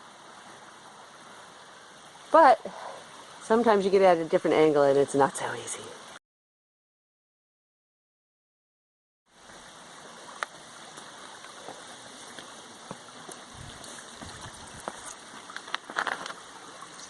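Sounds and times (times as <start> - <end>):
river flowing over rocks: 9.3 - 17.0.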